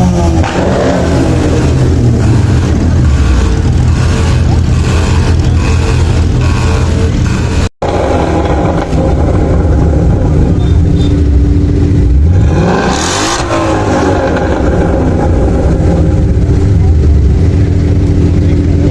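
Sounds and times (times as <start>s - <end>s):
engine exhaust revving hard: 0.0s - 18.8s.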